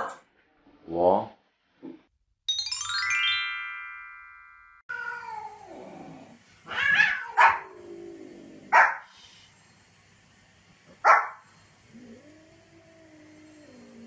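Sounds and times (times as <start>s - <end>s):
rising chime: 2.5s - 4.9s
cat yowling: 4.9s - 5.8s, 6.6s - 7.8s
dog barking: 7.0s - 7.7s, 8.7s - 9.1s, 11.0s - 11.4s.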